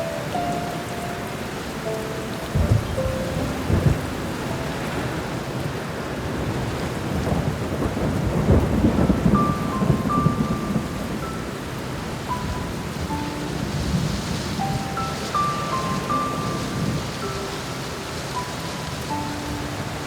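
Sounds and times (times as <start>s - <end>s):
sparse piano notes: 0.0s - 5.6s, 9.2s - 20.0s
steady rain falling: 0.0s - 20.0s
thunder rumbling: 0.0s - 20.0s.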